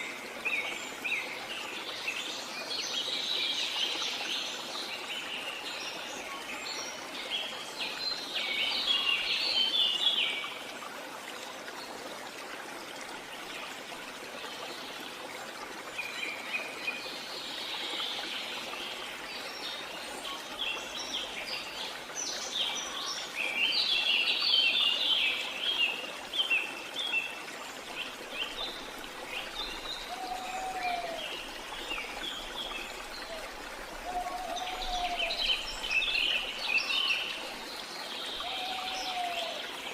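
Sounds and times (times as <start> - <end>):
waterfall rushing: 28.7 - 39.9.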